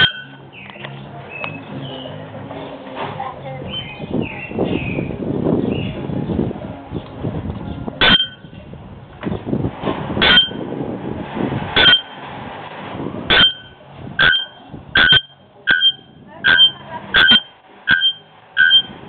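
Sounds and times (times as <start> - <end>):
bird's metallic clanging call: 0.0 - 0.7, 8.0 - 8.5, 10.2 - 10.6, 11.8 - 12.2, 13.3 - 18.9.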